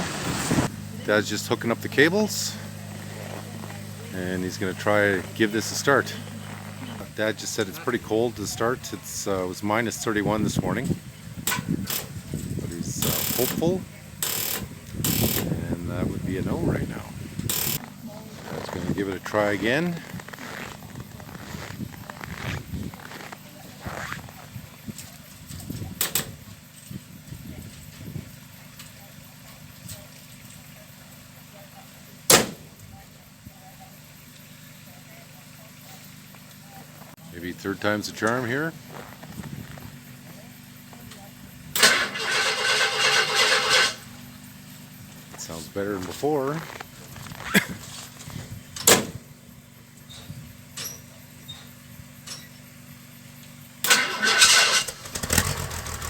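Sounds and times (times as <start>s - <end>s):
snowmobile engine running loudly: 0.0s - 11.0s, 12.1s - 24.8s, 45.3s - 48.6s
vehicle engine idling: 0.0s - 56.0s.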